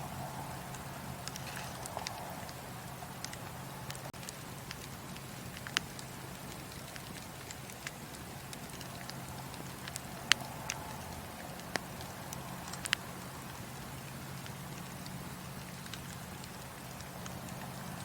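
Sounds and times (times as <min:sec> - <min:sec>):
steady low hum: 0:00.0 - 0:18.0
wood fire crackling: 0:00.0 - 0:18.0.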